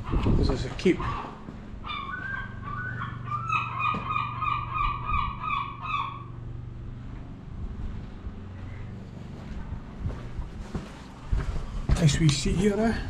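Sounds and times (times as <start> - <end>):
bird calling: 0.0 - 6.6.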